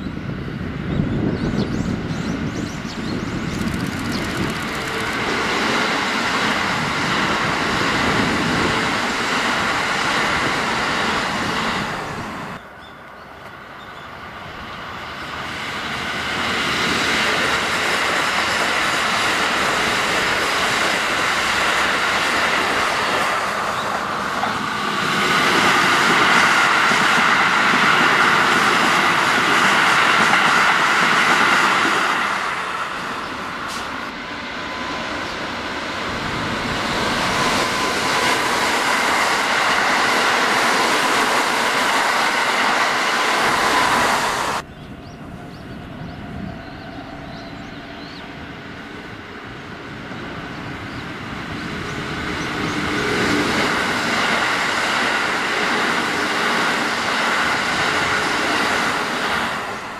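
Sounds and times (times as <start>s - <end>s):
electric train passing: 0.0s - 59.9s
wheels on rails: 2.5s - 13.6s.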